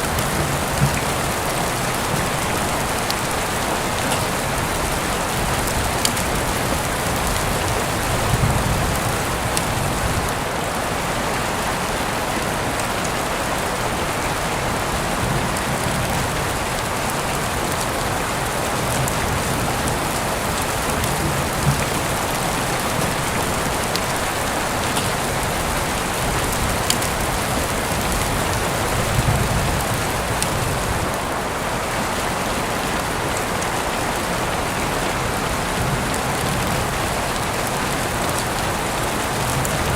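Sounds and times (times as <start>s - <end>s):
raindrops ticking sharply: 0.0s - 10.4s
heavy rain falling: 0.0s - 39.9s.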